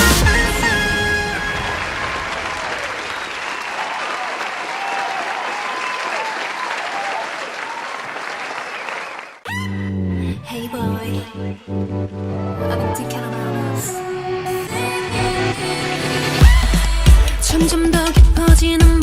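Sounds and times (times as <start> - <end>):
music: 0.0 - 2.0, 9.5 - 19.0
crowd applauding and cheering: 0.0 - 9.5.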